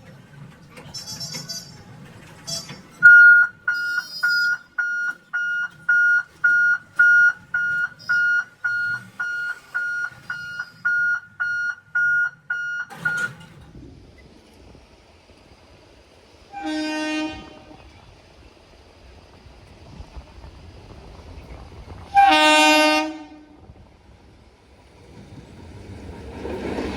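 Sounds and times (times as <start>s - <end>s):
level crossing warning buzzer beeping: 2.5s - 13.4s.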